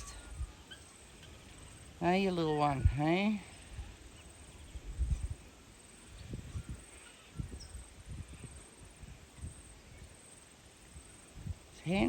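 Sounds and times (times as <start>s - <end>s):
wind buffeting on microphone: 2.6s - 5.5s, 6.1s - 10.1s, 11.3s - 12.0s.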